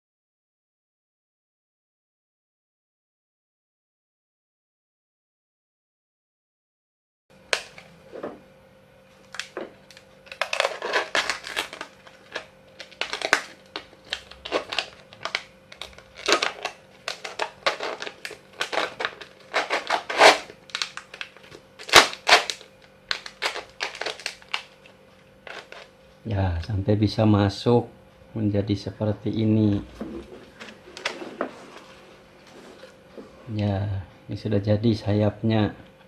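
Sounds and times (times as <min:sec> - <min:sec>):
faint steady hum: 0:07.3 - 0:36.0
plastic bottle crackling: 0:09.3 - 0:25.9.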